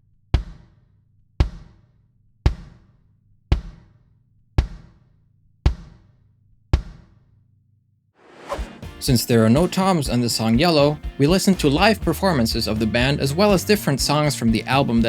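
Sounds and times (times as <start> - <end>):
muffled bass drum thumps: 0.4 - 0.7, 1.4 - 1.8, 2.5 - 2.8, 3.5 - 3.9, 4.6 - 4.9, 5.7 - 6.0, 6.8 - 7.1.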